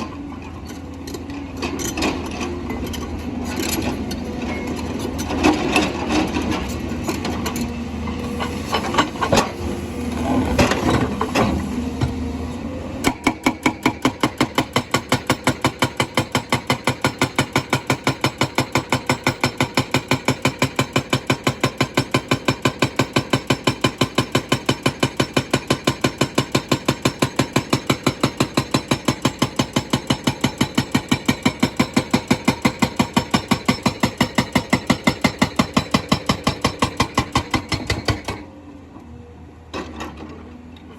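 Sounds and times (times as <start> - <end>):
hydraulic breaker hammering stone: 13.0 - 38.5.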